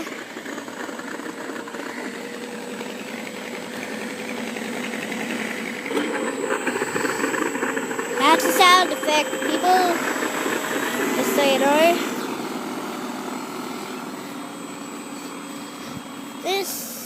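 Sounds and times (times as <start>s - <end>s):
simulated piston engine idle: 0.0s - 17.0s
thin steady whine: 0.0s - 17.0s.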